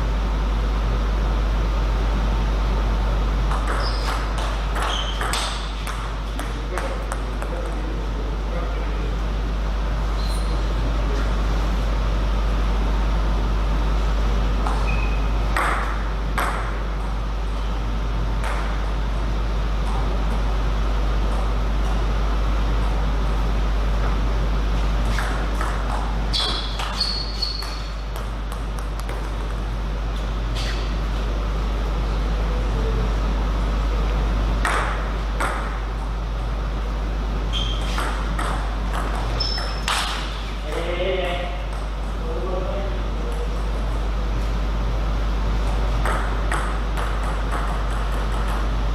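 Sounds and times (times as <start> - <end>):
steady low hum: 0.0 - 48.9
table tennis ball hits: 3.5 - 7.8, 14.6 - 17.1, 18.4 - 18.9, 25.1 - 29.6, 34.6 - 36.1, 37.7 - 40.9, 45.6 - 48.7.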